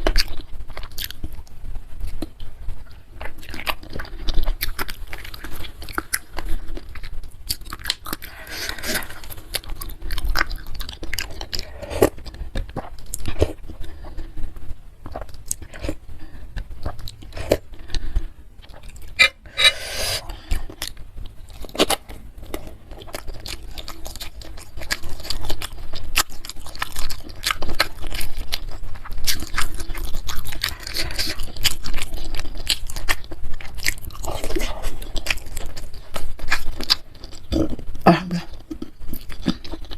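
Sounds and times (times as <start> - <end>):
person chewing and biting: 3.2 - 14.4, 15.0 - 17.9, 18.6 - 37.8.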